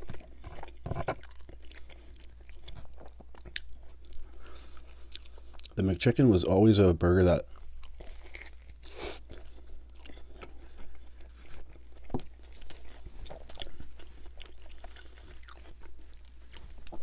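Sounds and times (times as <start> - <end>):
chewing with wet mouth sounds: 0.0 - 5.8, 7.4 - 17.0
soft crunches: 7.5 - 17.0.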